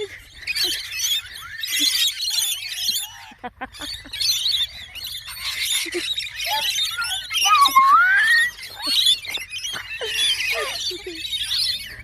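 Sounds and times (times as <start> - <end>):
birds chirping and squeaking: 0.0 - 12.0.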